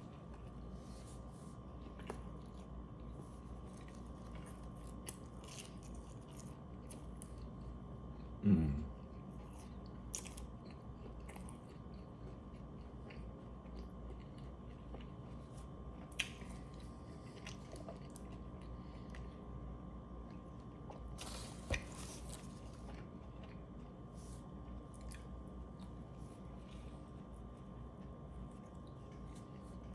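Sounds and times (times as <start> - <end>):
close chewing with mouth clicks: 1.5 - 8.4, 9.0 - 19.5, 20.2 - 24.0
low voice hum: 8.2 - 9.4.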